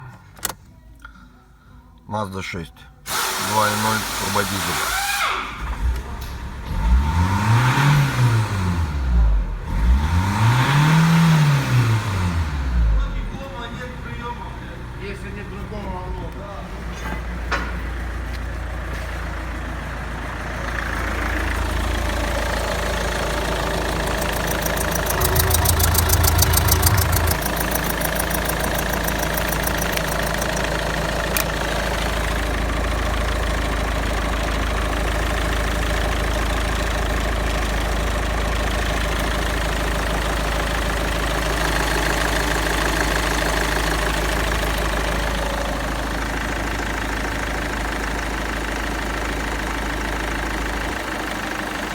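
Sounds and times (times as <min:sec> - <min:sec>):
diesel engine idling: 0:10.9 - 0:51.9.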